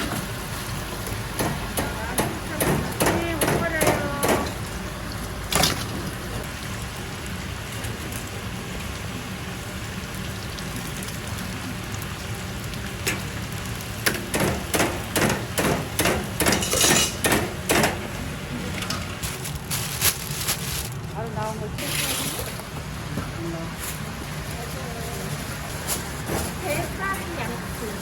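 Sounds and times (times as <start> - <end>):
chicken sizzling in oil: 4.6 - 17.1
utensils and pans clattering: 14.0 - 20.0.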